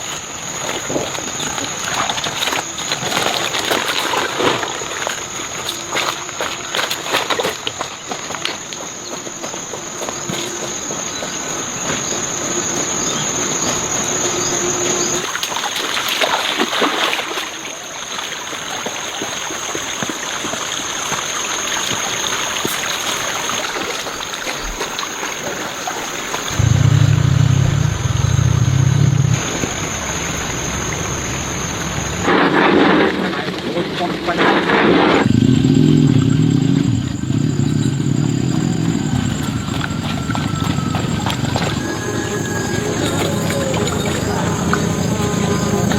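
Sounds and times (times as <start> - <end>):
high-pitched insect drone: 0.0 - 32.4, 35.0 - 45.9
loud low motor hum: 26.5 - 32.3, 35.2 - 45.9.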